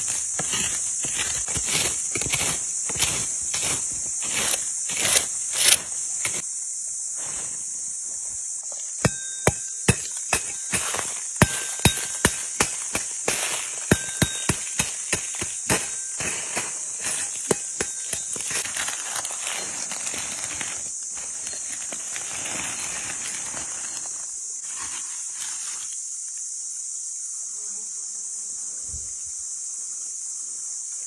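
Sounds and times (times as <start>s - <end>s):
high-pitched insect drone: 0.0s - 31.0s
sharp knocks ringing like metal: 9.0s - 18.6s.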